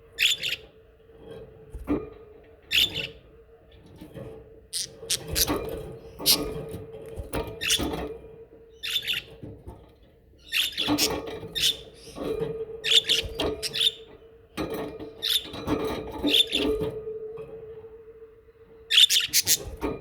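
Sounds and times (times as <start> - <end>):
budgerigars chirping and warbling: 0.2 - 0.7, 2.7 - 3.2, 4.8 - 6.6, 7.6 - 8.0, 8.8 - 9.3, 10.4 - 14.1, 15.1 - 16.8, 18.9 - 19.7.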